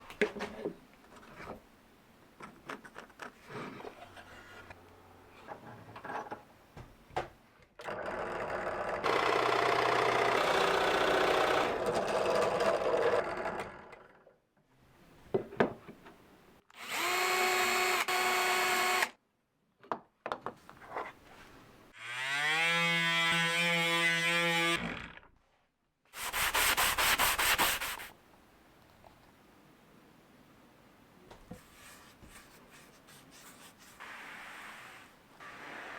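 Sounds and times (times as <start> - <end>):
woodworking power tool cutting: 22.0 - 25.2.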